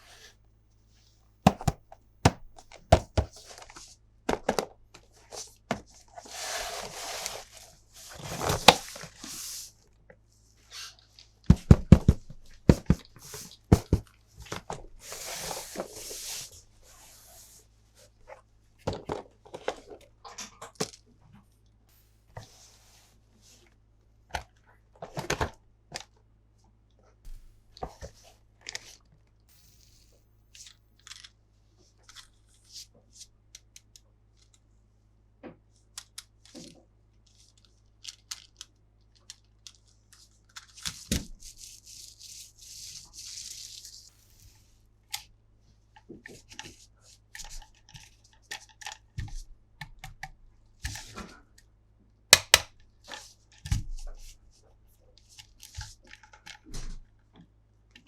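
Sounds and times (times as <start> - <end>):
packaging crinkling and tearing: 37.4 - 42.2.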